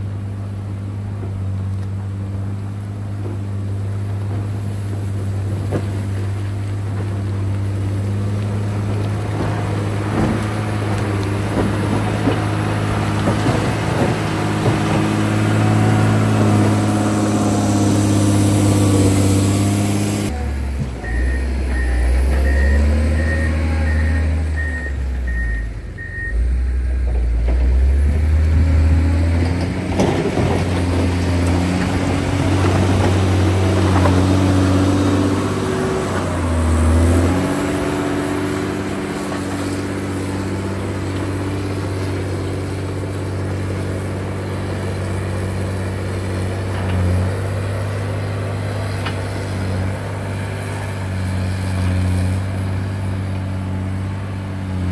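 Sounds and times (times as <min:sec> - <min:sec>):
diesel engine running: 0:00.0 - 0:54.9
reversing alarm beeps: 0:21.0 - 0:27.0.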